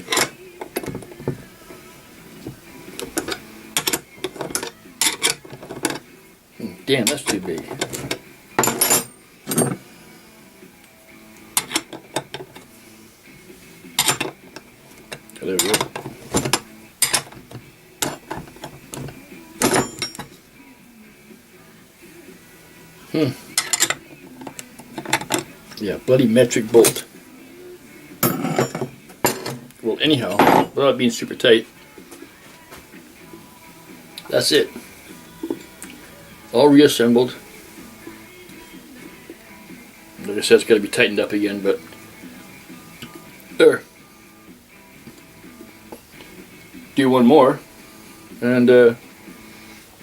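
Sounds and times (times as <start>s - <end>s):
small metal parts clinking: 7.1s - 9.8s, 15.6s - 17.4s, 18.0s - 20.4s, 23.6s - 25.5s, 28.2s - 29.6s.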